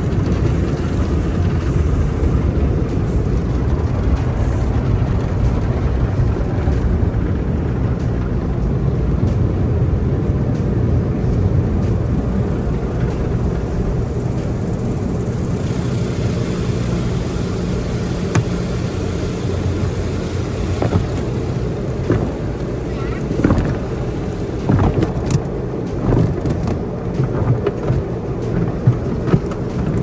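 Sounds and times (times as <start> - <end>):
water spray hissing over car: 0.0 - 4.8, 11.8 - 30.0
car wash machinery rumbling: 0.0 - 30.0.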